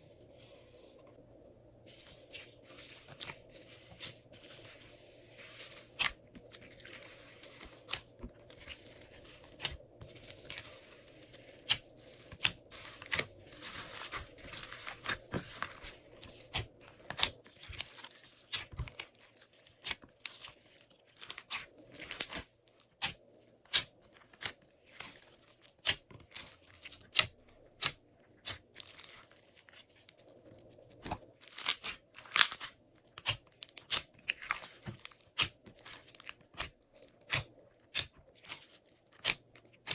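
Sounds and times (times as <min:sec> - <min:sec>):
slime clicking and crackling: 0:05.8 - 0:20.5, 0:31.4 - 0:39.9.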